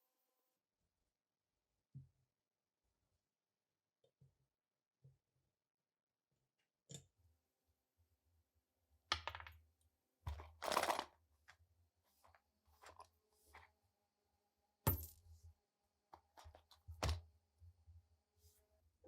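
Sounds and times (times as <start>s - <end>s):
metal parts rattling clatter: 10.6s - 11.0s.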